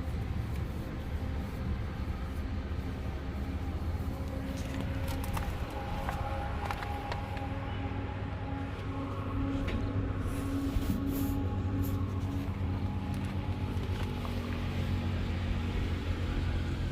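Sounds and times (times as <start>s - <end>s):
tractor diesel engine idling: 0.0s - 16.9s.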